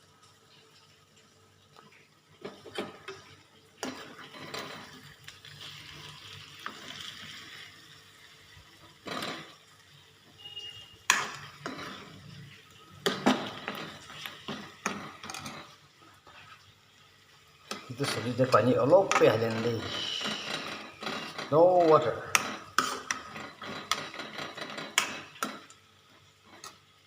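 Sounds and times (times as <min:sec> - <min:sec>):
curry sizzling in a pan: 0:00.0 - 0:27.0
spatula scraping a pan: 0:02.4 - 0:07.8, 0:10.3 - 0:16.7, 0:19.0 - 0:26.8
utensil clanking against pan: 0:13.0 - 0:15.8, 0:22.3 - 0:25.7.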